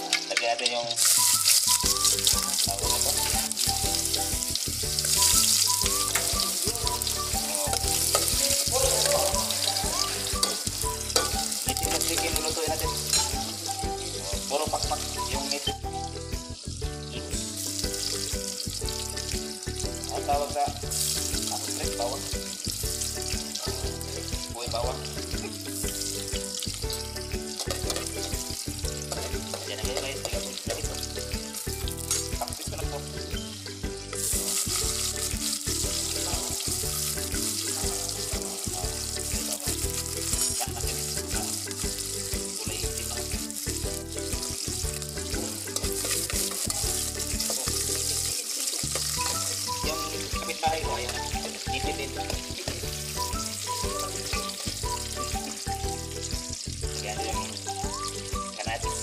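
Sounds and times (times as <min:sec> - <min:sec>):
background music with low beat: 0:00.0 - 0:59.0
garlic and onion sizzling in oil: 0:00.0 - 0:59.0
spoon stirring in a pot: 0:07.7 - 0:12.3, 0:44.0 - 0:49.4.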